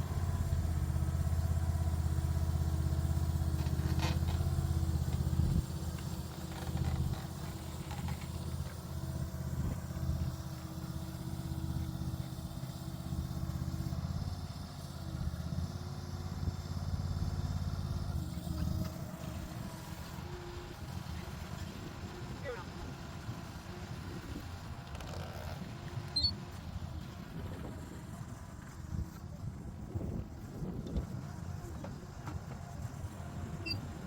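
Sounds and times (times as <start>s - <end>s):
skid steer engine running: 0.0s - 34.0s.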